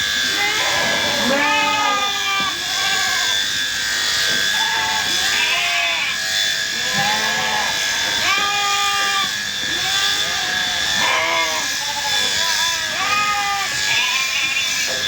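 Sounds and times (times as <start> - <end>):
steady mechanical hum: 0.0 - 15.0
sheep bleating: 0.2 - 3.4, 4.4 - 14.9.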